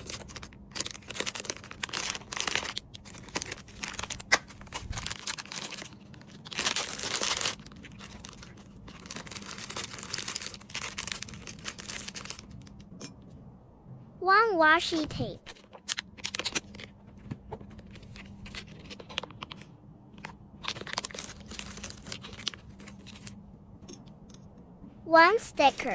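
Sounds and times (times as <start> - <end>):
packaging crinkling: 0.0 - 12.9, 15.4 - 17.0, 17.6 - 23.4.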